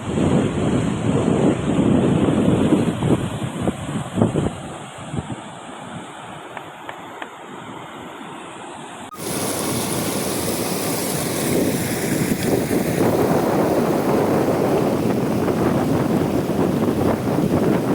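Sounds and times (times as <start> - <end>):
waterfall roaring: 9.1 - 17.9.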